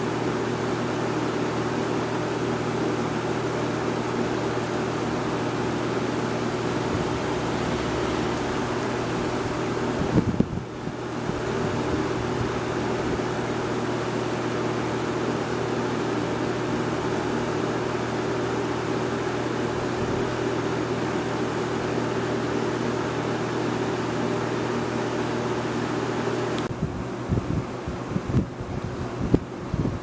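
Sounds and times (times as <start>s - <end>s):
fan blades rushing air: 0.0s - 30.0s
low motor hum: 3.6s - 14.6s.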